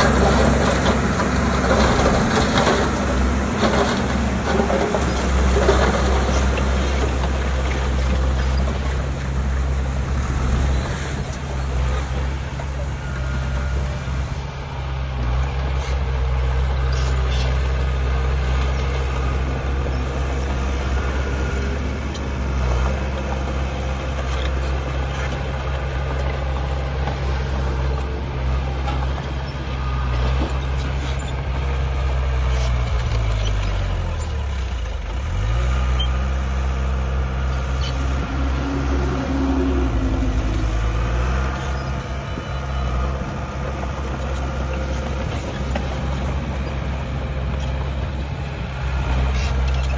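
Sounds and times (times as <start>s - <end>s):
heavy diesel engine running: 0.0s - 49.9s.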